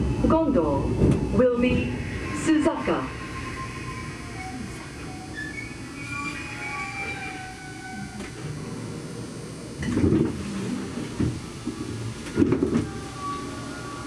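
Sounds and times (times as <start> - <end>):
train running gear rumble: 0.0 - 14.0
train knocks and jolts: 9.8 - 12.9.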